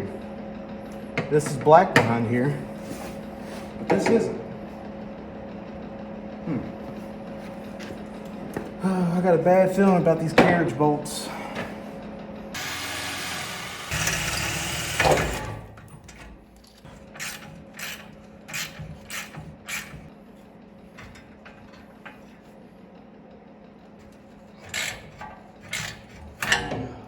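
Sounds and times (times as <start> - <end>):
hand tool scraping metal: 16.8 - 20.1, 24.1 - 26.8.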